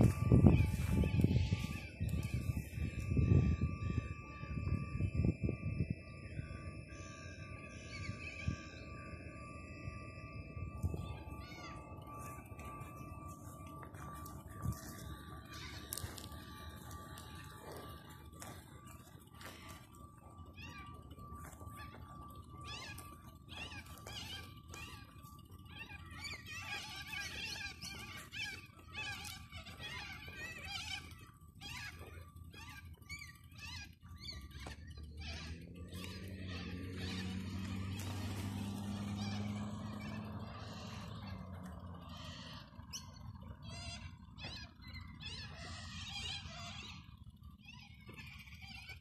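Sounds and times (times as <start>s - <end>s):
birds chirping: 0.0s - 49.0s
low background rumble: 0.0s - 49.0s.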